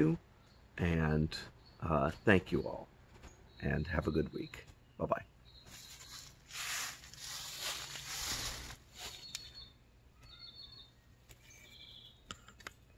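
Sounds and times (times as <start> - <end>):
high bird chirps: 1.6 - 12.5
rustling: 5.6 - 9.6.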